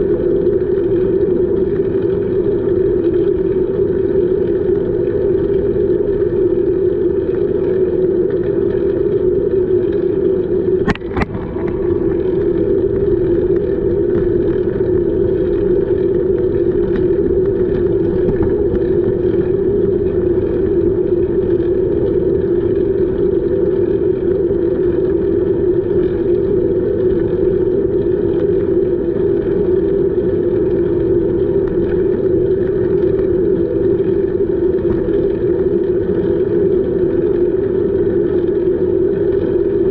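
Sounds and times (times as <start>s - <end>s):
rushing wind: 10.5s - 24.7s, 30.2s - 37.1s.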